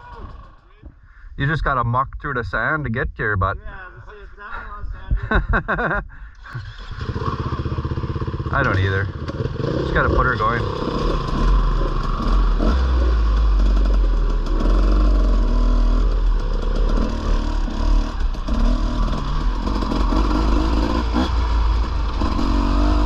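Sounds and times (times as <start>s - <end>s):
dirt bike engine revving: 6.6s - 23.0s.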